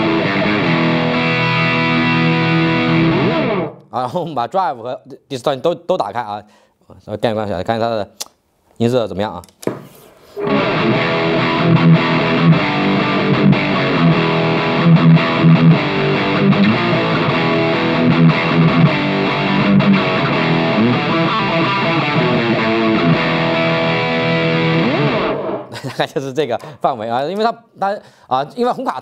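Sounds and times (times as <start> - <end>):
distorted electric guitar riff: 0.0 - 3.8, 10.3 - 25.8.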